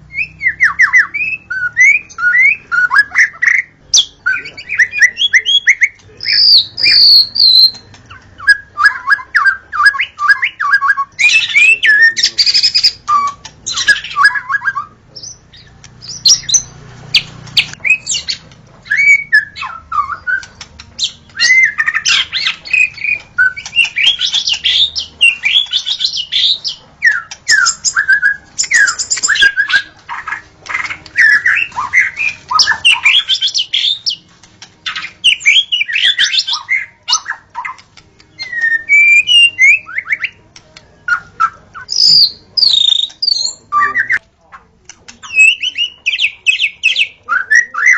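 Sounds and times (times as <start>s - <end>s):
songbird singing: 0.0s - 47.9s.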